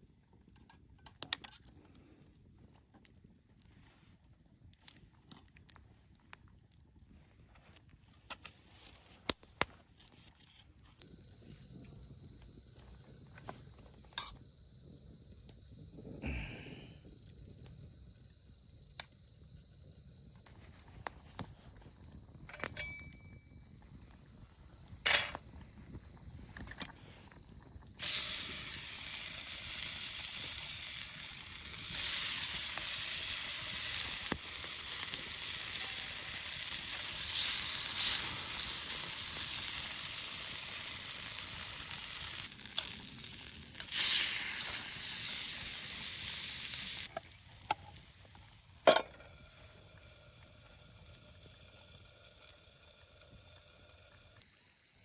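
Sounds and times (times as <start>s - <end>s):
campfire crackles: 0.0s - 54.9s
night insects trilling: 0.0s - 55.0s
loud sizzling hiss: 27.9s - 47.4s.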